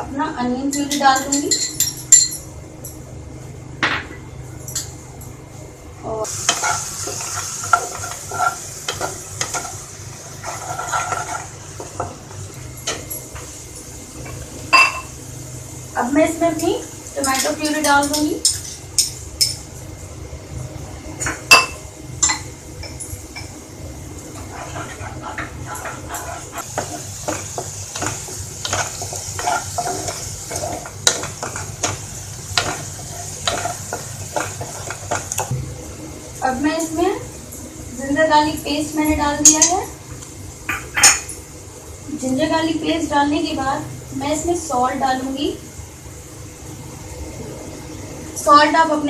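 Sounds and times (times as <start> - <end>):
frying hiss: 6.0 - 49.0
food sizzling: 6.1 - 49.0
spoon scraping metal pan: 10.4 - 11.5, 24.4 - 32.0.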